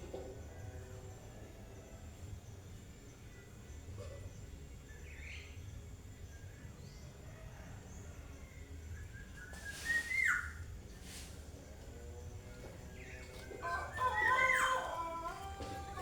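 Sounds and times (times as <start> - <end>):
bird whistling song: 9.0 - 10.7.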